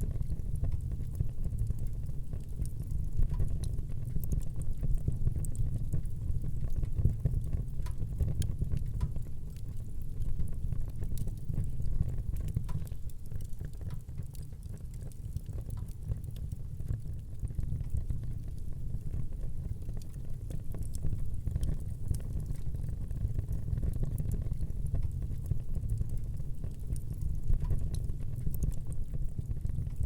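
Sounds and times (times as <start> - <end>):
fire burning in fireplace: 0.0 - 30.0
fire crackles and pops: 0.0 - 30.0.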